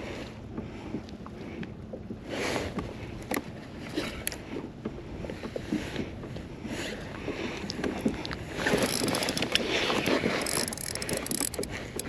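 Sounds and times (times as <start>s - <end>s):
light clicks and knocks: 8.7s - 12.0s.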